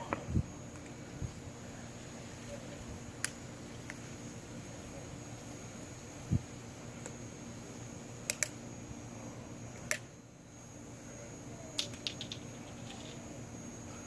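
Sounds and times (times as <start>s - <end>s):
faint steady hum: 0.0s - 14.0s
sharp clicks: 8.3s - 8.6s, 11.8s - 13.2s.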